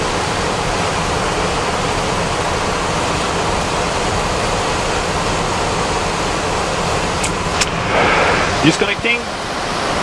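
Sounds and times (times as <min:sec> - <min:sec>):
airflow and engine noise in cockpit: 0:00.0 - 0:10.0.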